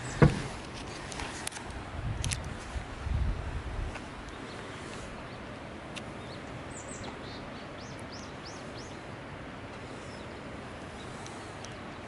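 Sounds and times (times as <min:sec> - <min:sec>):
outdoor background hiss: 0:00.0 - 0:12.0
small birds chirping: 0:04.0 - 0:12.0.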